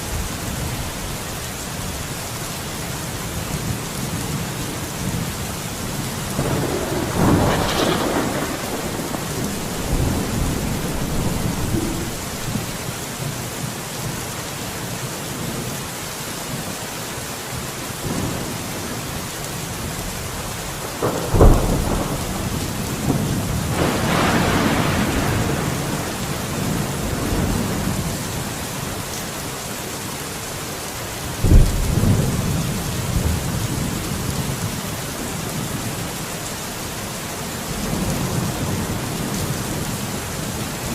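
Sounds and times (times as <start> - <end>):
steady rain: 0.0 - 40.9
rolling thunder rumble: 5.9 - 13.0, 20.8 - 28.2, 31.4 - 34.7
sharp thunder crack: 6.4 - 12.8, 21.0 - 27.5.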